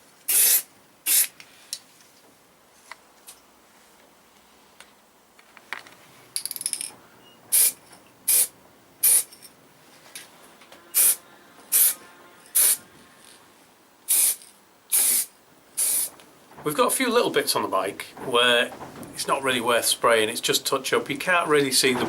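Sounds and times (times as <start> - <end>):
spray can hissing bursts: 0.3 - 1.4, 7.5 - 9.3, 10.9 - 12.0, 12.6 - 12.8, 14.1 - 16.2
spray can rattling: 0.3 - 1.4, 7.5 - 9.4, 11.0 - 12.0, 12.6 - 12.8, 14.1 - 16.2.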